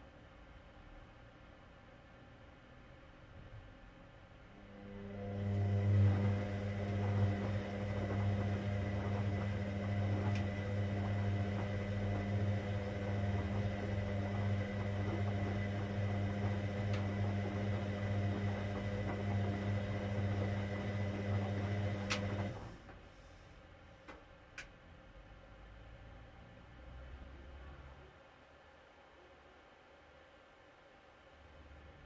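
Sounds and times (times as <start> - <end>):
washing machine humming: 4.6 - 23.2.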